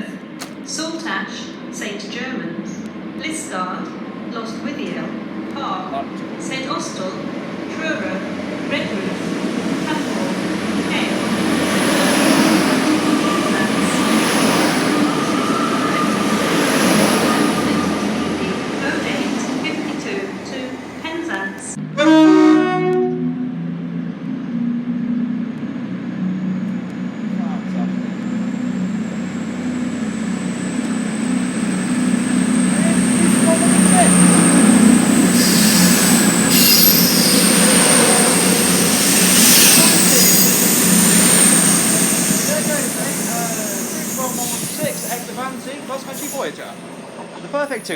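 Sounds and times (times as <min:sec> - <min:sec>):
train passing on rails: 0:00.0 - 0:47.9
high-pitched squeal: 0:09.3 - 0:21.6, 0:28.3 - 0:47.9
short hissing rushes: 0:34.1 - 0:46.5.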